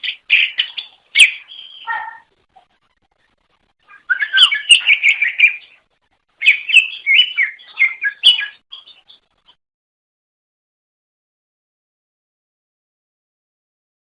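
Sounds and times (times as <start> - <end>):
bird warbling whistled notes: 0.0 - 2.2, 3.9 - 5.6, 6.4 - 8.8.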